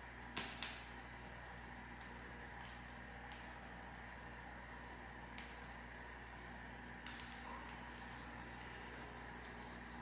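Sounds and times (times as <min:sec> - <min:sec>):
steady low hum: 0:00.0 - 0:10.0
wood fire crackling: 0:00.0 - 0:10.0
sharp snap of fire: 0:00.3 - 0:03.6, 0:05.3 - 0:05.8, 0:07.0 - 0:08.1.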